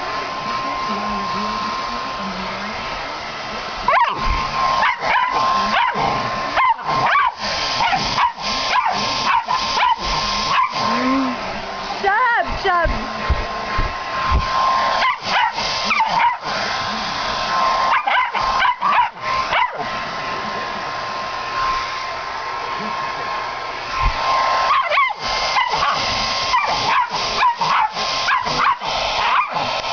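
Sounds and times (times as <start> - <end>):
hair dryer whining: 0.0 - 29.9
dog barking and yelping: 3.9 - 10.9, 14.9 - 16.6, 17.8 - 19.9, 24.6 - 29.7.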